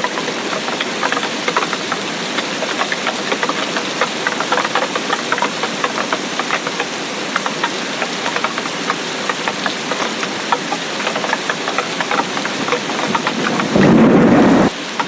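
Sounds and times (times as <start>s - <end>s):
raindrops ticking: 0.0s - 15.0s
steady rain: 0.0s - 15.0s.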